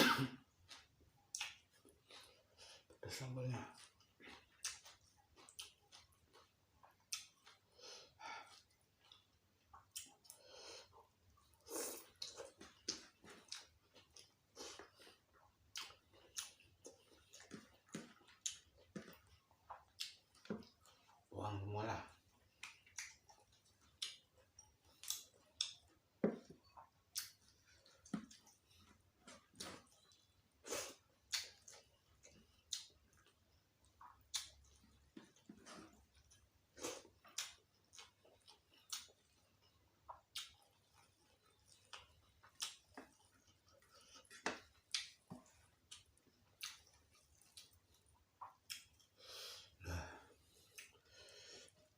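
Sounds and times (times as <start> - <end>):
person chewing crunchy food: 0.5 - 3.0, 3.7 - 21.3, 22.1 - 51.9
wet mouth clicks and smacks: 1.3 - 1.7, 22.5 - 25.8, 26.4 - 28.5, 31.3 - 31.8, 32.6 - 33.2, 33.9 - 35.6, 40.1 - 40.7, 41.4 - 49.2.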